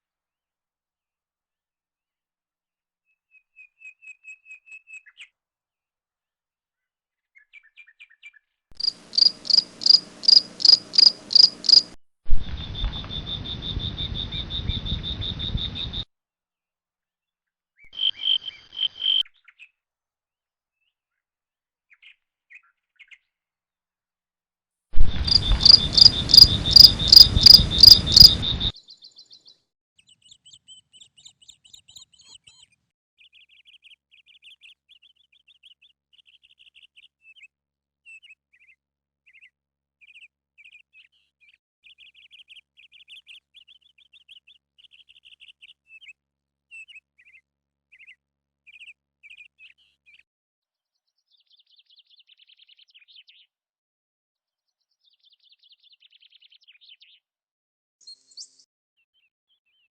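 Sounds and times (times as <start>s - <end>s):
crickets chirping: 8.8s - 16.0s, 25.1s - 28.7s
rushing noise: 25.0s - 28.7s.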